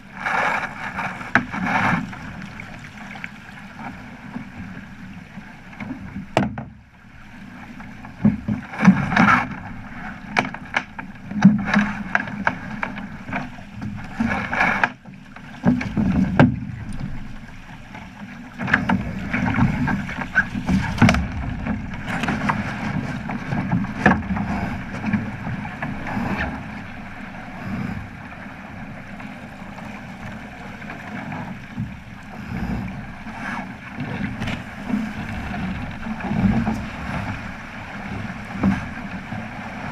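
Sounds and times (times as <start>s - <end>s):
water slapping against boat hull: 0.0s - 39.9s
splashes and knocks: 0.2s - 4.7s, 5.8s - 6.8s, 8.1s - 27.1s, 28.8s - 39.9s
wind buffeting microphone: 18.8s - 39.9s.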